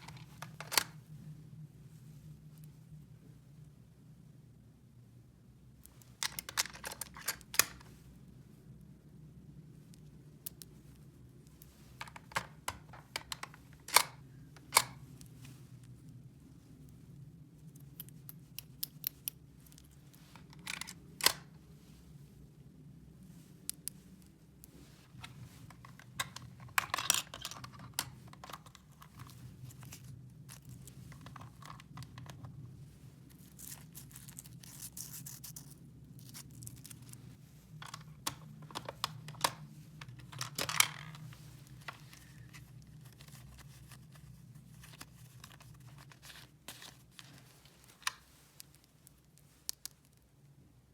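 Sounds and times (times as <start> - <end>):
rustling and scraping: 0.0 - 1.0, 23.3 - 49.7
low steady hum: 0.0 - 50.9.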